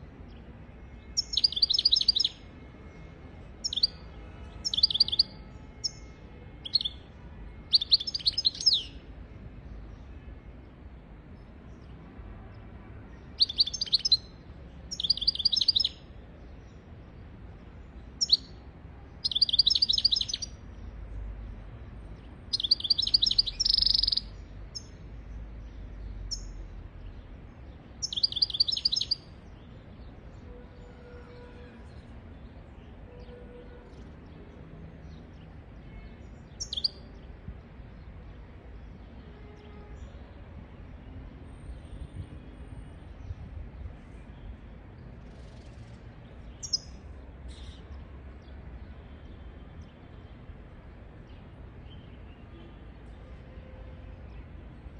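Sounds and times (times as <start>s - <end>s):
bird chirps: 1.2s - 2.4s, 3.6s - 4.0s, 4.6s - 7.0s, 7.6s - 9.0s, 13.4s - 14.3s, 14.9s - 16.0s, 18.2s - 18.6s, 19.2s - 20.6s, 22.5s - 25.0s, 26.3s - 26.6s, 28.0s - 29.4s, 36.5s - 37.2s, 45.3s - 48.5s
bird twittering trills: 1.2s - 2.4s, 3.6s - 4.0s, 4.6s - 6.0s, 6.6s - 7.0s, 7.7s - 9.0s, 13.4s - 14.3s, 14.9s - 16.0s, 18.2s - 18.5s, 19.2s - 20.6s, 22.5s - 24.9s, 26.3s - 26.6s, 28.0s - 29.4s, 36.5s - 37.1s, 45.4s - 47.8s.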